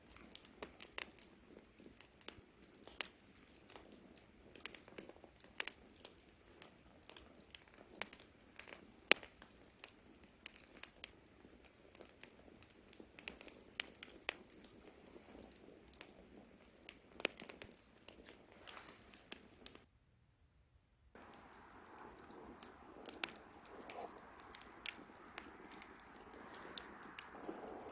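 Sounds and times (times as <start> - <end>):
campfire crackling and popping: 0.0 - 19.9, 21.2 - 27.9.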